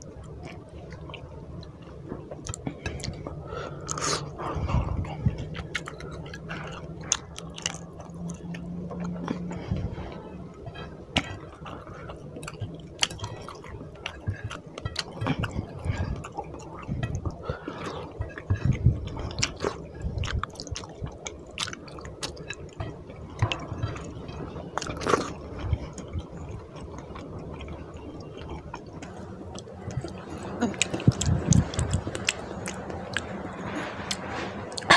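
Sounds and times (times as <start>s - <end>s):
chewing and wet mouth sounds: 0.0s - 34.9s.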